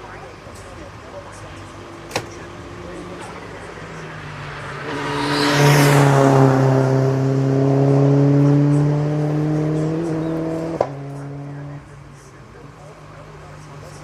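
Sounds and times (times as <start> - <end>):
race car passing at speed: 1.5 - 12.2.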